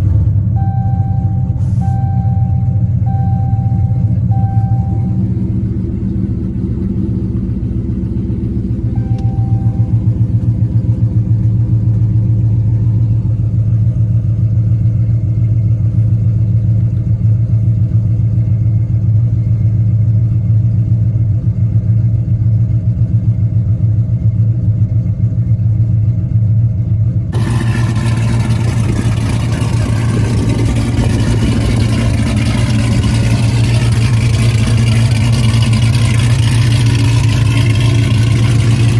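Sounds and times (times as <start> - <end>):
car engine idling with choppy lope: 0.0 - 38.9.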